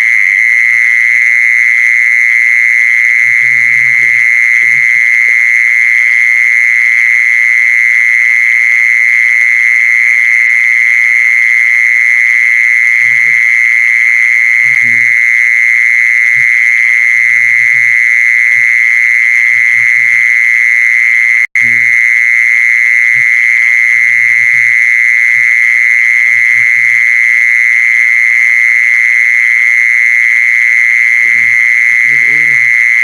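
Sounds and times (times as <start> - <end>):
faint low animal calls: 3.2 - 5.5, 13.0 - 13.5, 14.6 - 15.3, 16.3 - 20.3, 21.6 - 22.0, 23.1 - 27.1, 31.1 - 33.0
high-pitched drone: 21.5 - 21.9, 31.2 - 32.8.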